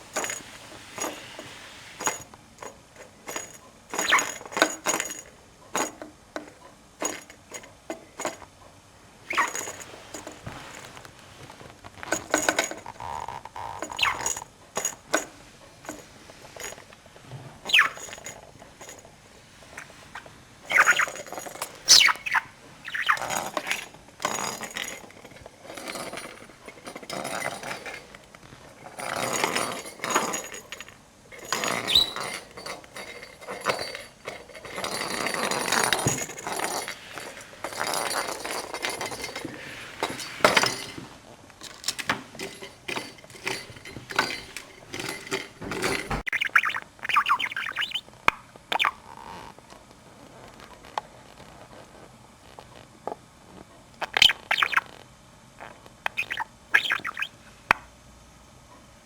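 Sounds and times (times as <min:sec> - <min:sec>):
small clicks and clinks: 0:00.1 - 0:08.5, 0:09.3 - 0:11.0, 0:11.9 - 0:17.0, 0:17.7 - 0:19.1, 0:20.7 - 0:48.0
budgerigar chattering: 0:46.3 - 0:48.0, 0:54.2 - 0:54.8, 0:56.1 - 0:57.3.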